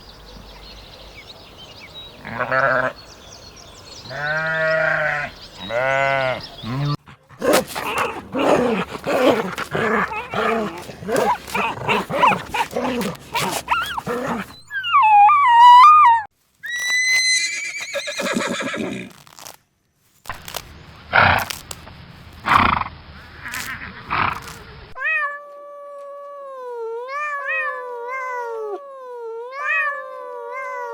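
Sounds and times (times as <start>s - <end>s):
animal bleating: 2.2s - 3.0s, 4.1s - 14.5s
farm animals calling: 2.2s - 3.0s, 4.0s - 19.1s.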